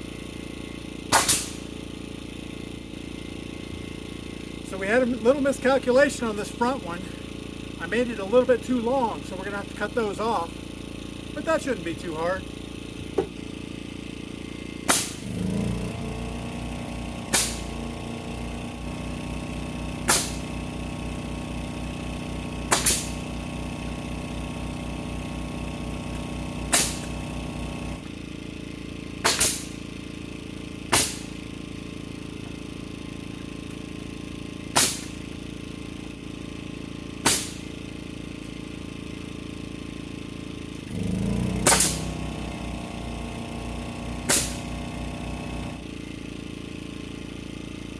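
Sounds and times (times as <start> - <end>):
short sharp knocks: 22.7 - 23.1.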